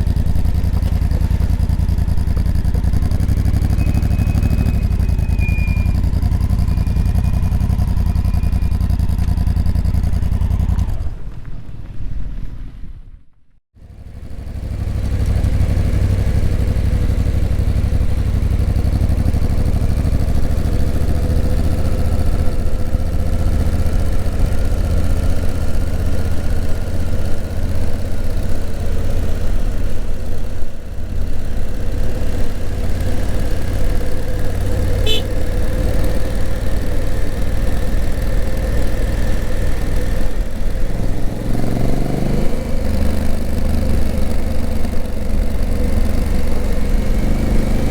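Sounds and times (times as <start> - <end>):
motorcycle engine running: 0.0 - 11.5, 13.8 - 47.9.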